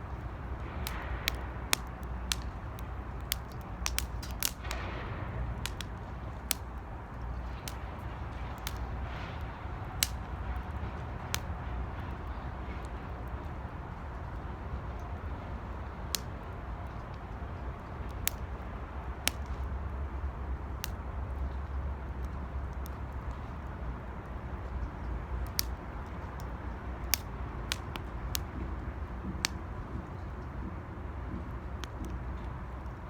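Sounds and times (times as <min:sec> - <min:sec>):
wood fire rushing: 0:00.0 - 0:24.6
fire crackling pops: 0:00.0 - 0:33.0.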